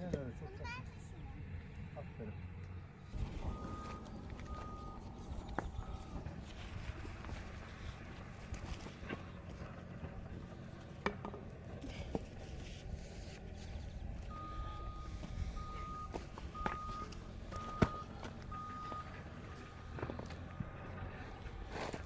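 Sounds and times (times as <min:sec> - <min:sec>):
electronic beeper tone: 0:14.3 - 0:17.1.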